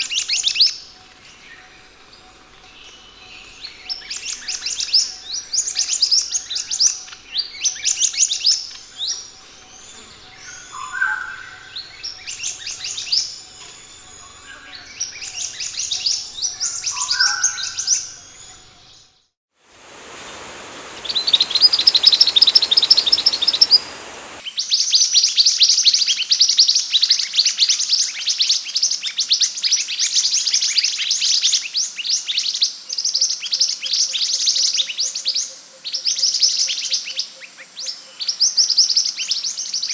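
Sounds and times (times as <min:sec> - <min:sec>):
lower bird call: 0:19.7 - 0:24.4
bird chirping high notes: 0:19.8 - 0:24.4.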